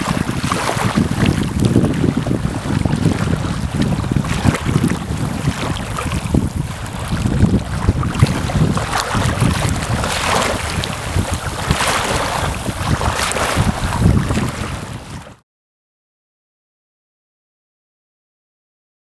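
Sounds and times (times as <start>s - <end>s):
wind buffeting microphone: 0.0s - 15.4s.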